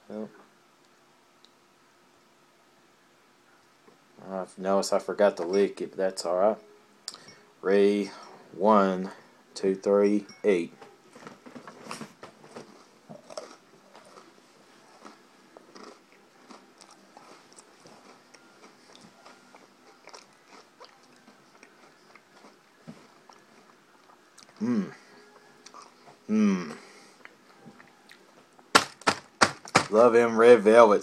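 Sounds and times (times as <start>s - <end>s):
person chewing cookie: 12.4s - 28.7s.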